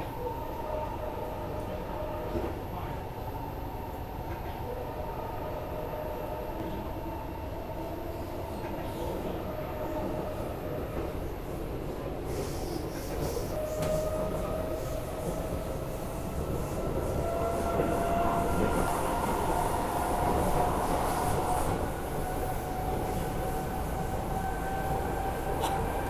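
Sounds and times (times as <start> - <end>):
train wheels rumbling on rails: 9.9 - 26.0.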